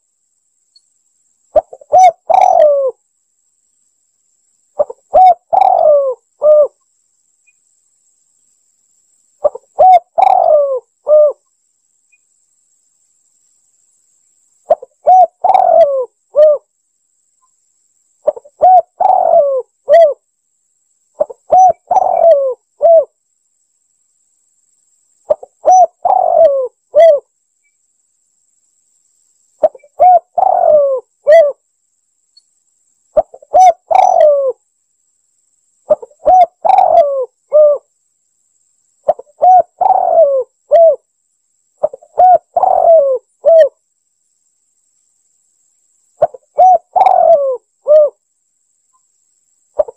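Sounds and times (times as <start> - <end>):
dove cooing: 1.5 - 3.0, 4.8 - 6.8, 9.4 - 11.4, 14.7 - 16.7, 18.2 - 20.2, 21.2 - 23.1, 25.3 - 27.3, 29.6 - 31.6, 33.2 - 34.6, 35.9 - 37.9, 39.0 - 41.0, 41.8 - 43.8, 46.2 - 48.2.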